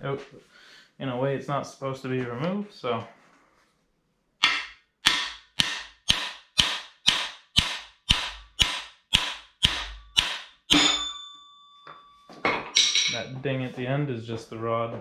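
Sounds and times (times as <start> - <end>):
hammer striking metal rod: 4.4 - 12.1, 12.8 - 13.3.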